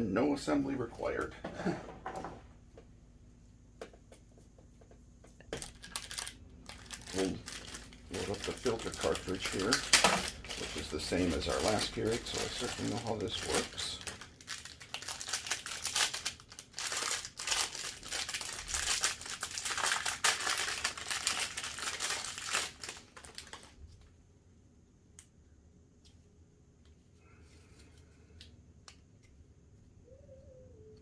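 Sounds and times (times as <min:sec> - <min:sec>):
plastic wrapping crinkling and tearing: 0:05.6 - 0:23.9.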